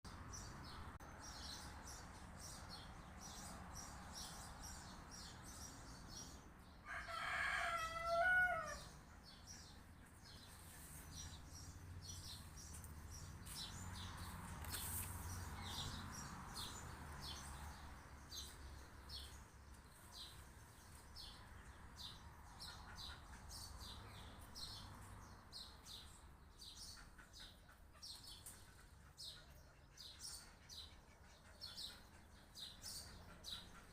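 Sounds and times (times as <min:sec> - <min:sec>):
small birds chirping: 0:00.1 - 0:33.9
rooster crowing: 0:06.8 - 0:08.9.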